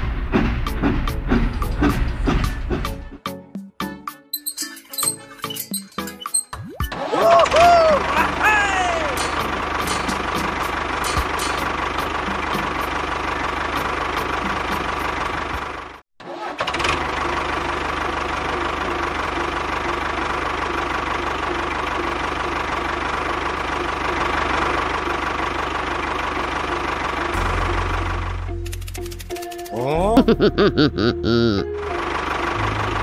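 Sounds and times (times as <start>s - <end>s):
tractor engine chugging: 7.4s - 33.0s.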